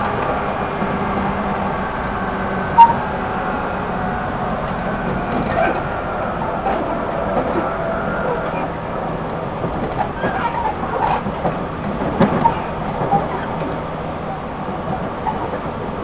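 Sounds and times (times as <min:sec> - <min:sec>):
train car interior hum: 0:00.0 - 0:16.0.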